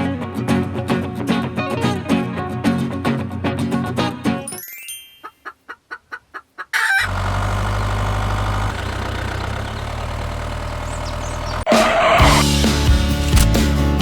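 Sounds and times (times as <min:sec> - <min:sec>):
chicken cluck: 0:05.3 - 0:07.0
engine idling: 0:06.8 - 0:12.6.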